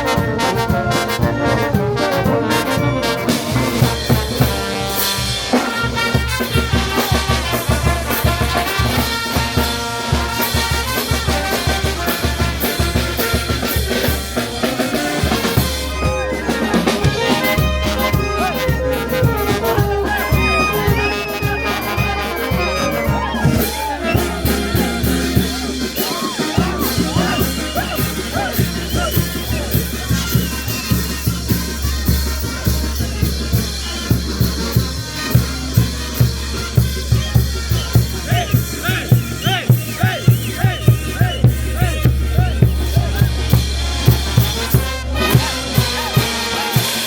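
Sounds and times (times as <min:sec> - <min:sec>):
brass melody: 0:00.0 - 0:47.0
drum kit beat: 0:00.0 - 0:47.0.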